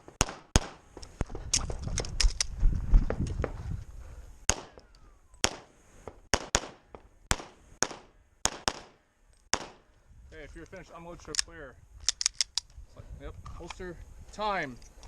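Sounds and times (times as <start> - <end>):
pistol shots with echo: 0.2 - 0.8, 6.3 - 9.8.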